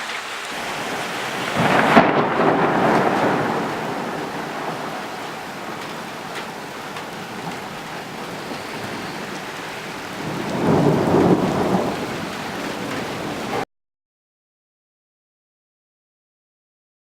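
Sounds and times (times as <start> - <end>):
steady rain falling: 0.0 - 13.7
thunder rumbling: 0.6 - 13.6.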